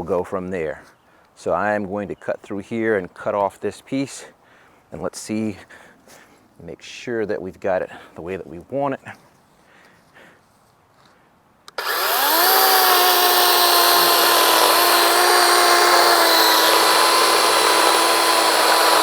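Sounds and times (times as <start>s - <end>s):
electric chainsaw cutting log: 11.7s - 19.0s.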